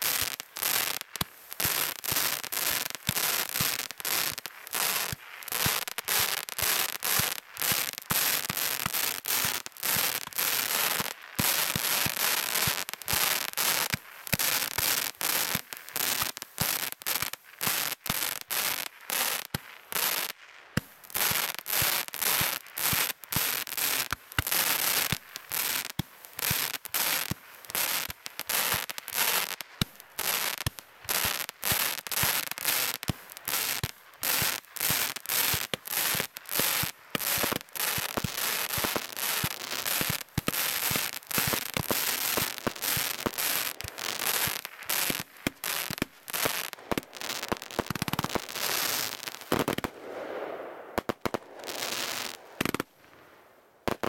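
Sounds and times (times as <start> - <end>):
fireworks cracking and popping: 0.0 - 54.0
fireworks hissing: 33.4 - 52.9.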